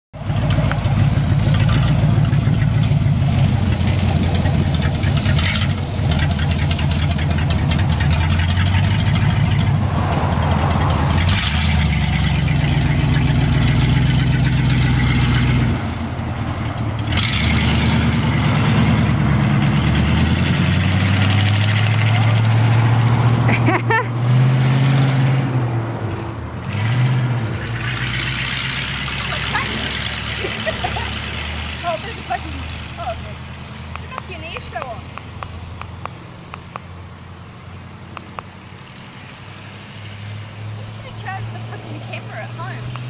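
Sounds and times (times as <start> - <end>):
car engine revving and driving off: 0.2 - 43.0.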